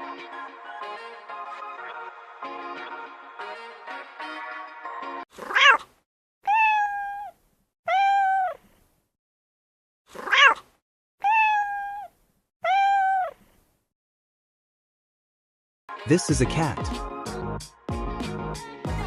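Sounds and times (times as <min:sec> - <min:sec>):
cat meowing: 0:05.4 - 0:08.8, 0:10.1 - 0:13.5.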